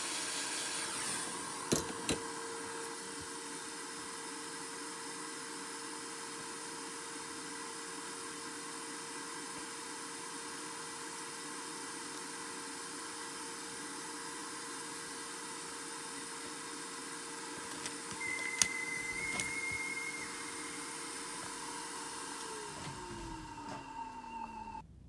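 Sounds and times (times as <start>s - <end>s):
small motor whirring: 0.0s - 13.3s, 15.3s - 24.8s
clicks: 17.6s - 20.6s.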